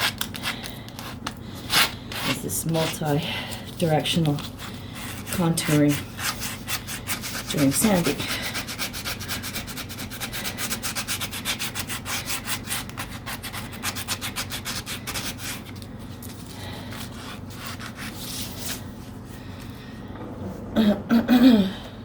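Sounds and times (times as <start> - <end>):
sandpaper rubbing on wood: 5.1 - 15.7.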